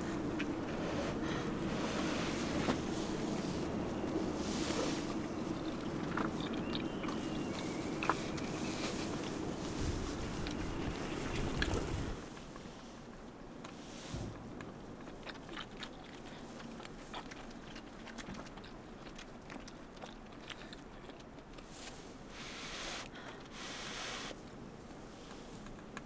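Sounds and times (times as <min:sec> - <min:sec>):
chewing and biting: 0:02.4 - 0:12.2, 0:14.6 - 0:22.3
hiss: 0:22.3 - 0:24.4.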